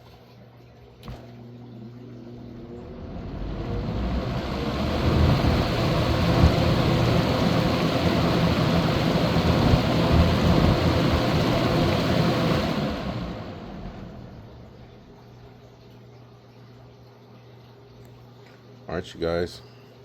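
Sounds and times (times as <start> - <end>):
box fan motor hum: 0.9 - 15.6
fan air rushing: 1.0 - 15.2.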